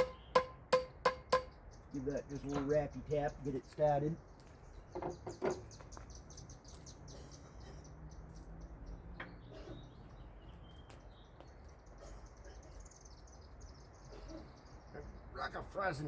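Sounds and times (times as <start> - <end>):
faint birds chirping: 0.0 - 16.0.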